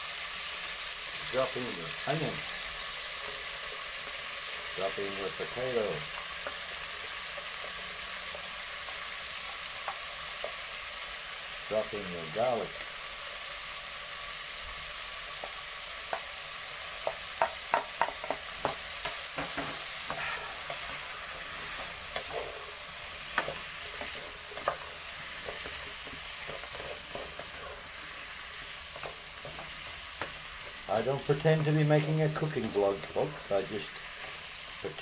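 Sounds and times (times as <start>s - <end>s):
food sizzling in pot: 0.0s - 35.0s
wooden spoon knocking pot: 17.0s - 20.2s.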